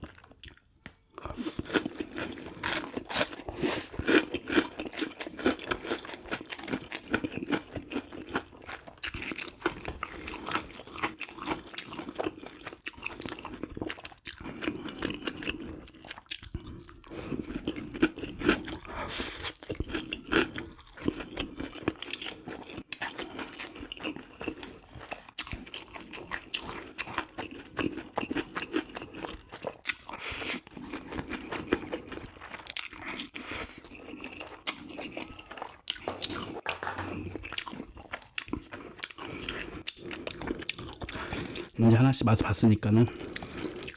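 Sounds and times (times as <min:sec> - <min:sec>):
crunchy bites and chewing: 0:00.0 - 0:42.0, 0:42.9 - 0:43.9.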